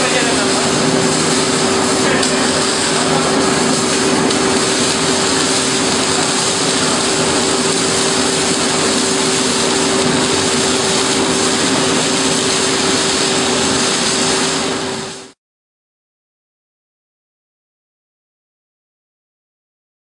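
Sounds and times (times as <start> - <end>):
loud machine humming: 0.0 - 15.4.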